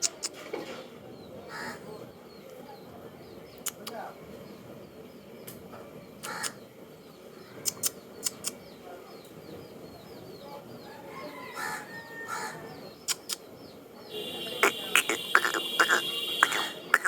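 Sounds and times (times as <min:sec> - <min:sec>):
harsh bird calls: 0:00.0 - 0:17.0
faint bird chirps: 0:06.2 - 0:17.0
sharp clicks: 0:07.6 - 0:08.6, 0:13.0 - 0:13.4.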